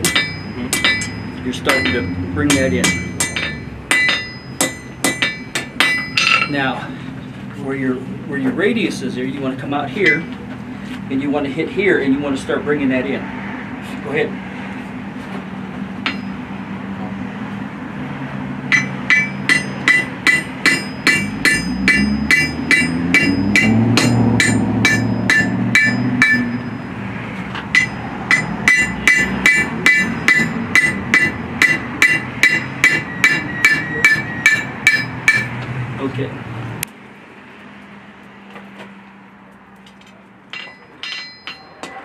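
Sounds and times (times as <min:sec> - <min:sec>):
anvil ringing: 0:00.0 - 0:06.7, 0:10.0 - 0:10.4, 0:16.0 - 0:16.5, 0:18.7 - 0:27.0, 0:27.7 - 0:35.6, 0:40.5 - 0:42.0
hammer striking steel on anvil: 0:00.0 - 0:06.7, 0:10.0 - 0:10.4, 0:16.0 - 0:16.4, 0:18.7 - 0:35.6, 0:40.5 - 0:42.0.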